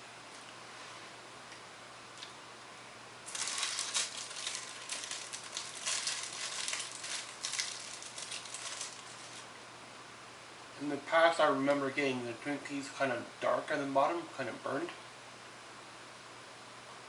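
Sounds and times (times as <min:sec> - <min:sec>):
plastic wrapper crinkling: 0:03.2 - 0:09.5.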